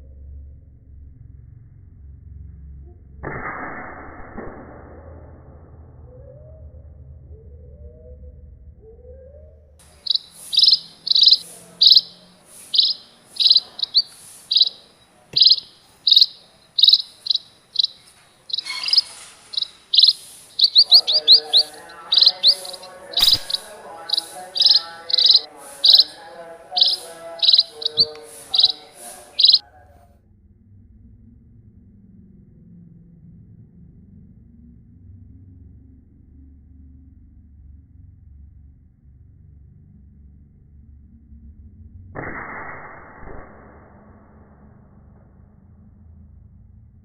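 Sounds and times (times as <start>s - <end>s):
bird chirping high: 9.8s - 29.6s
lower chattering bird call: 9.8s - 29.6s
sharp click: 23.2s - 23.7s.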